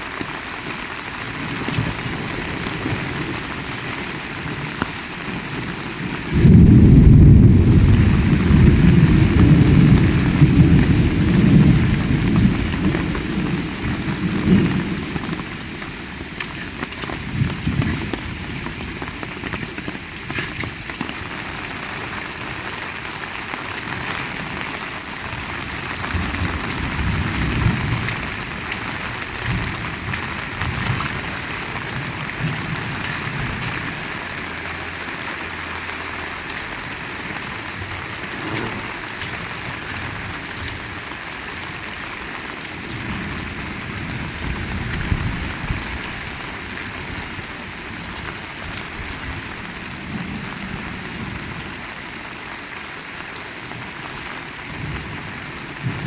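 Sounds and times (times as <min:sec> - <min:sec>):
heavy rain pouring: 0:00.0 - 0:56.0
thunder clap and rumbles: 0:01.2 - 0:51.8.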